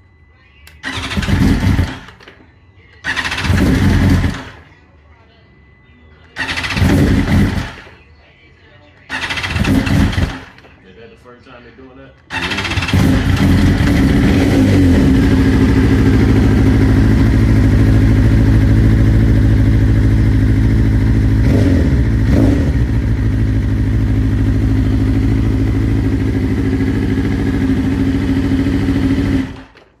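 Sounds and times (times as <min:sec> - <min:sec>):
motorcycle engine idling roughly: 0:00.8 - 0:02.2, 0:03.0 - 0:04.6, 0:06.4 - 0:08.0, 0:09.1 - 0:10.6, 0:12.3 - 0:29.8.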